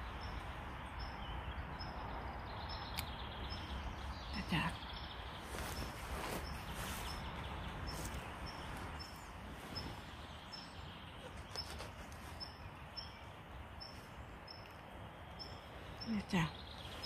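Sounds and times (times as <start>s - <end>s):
bird chirping: 0.0s - 17.0s
low wind rumble: 0.0s - 17.0s
rustling: 5.3s - 14.9s.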